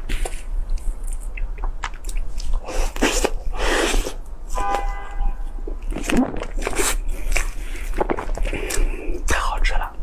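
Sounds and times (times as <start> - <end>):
wet chewing and mouth clicks: 0.0 - 4.2, 5.8 - 8.9
squishy mouth noises: 5.8 - 9.3.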